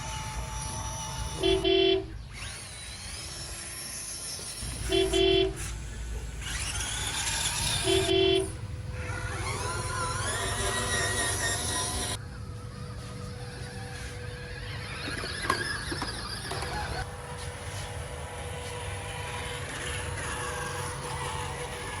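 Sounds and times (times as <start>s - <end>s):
motor revving: 0.0s - 12.2s, 12.9s - 22.0s
vehicle horn honking: 1.4s - 2.1s, 4.8s - 5.6s, 7.8s - 8.6s.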